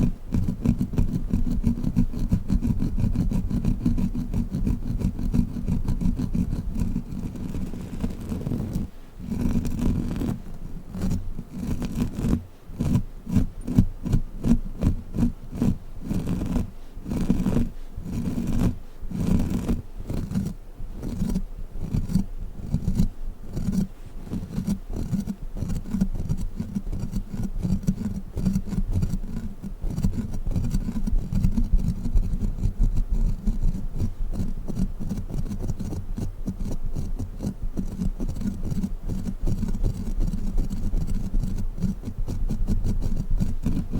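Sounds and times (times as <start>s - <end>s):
sticky toy tapping and crackling: 11.0s - 43.9s.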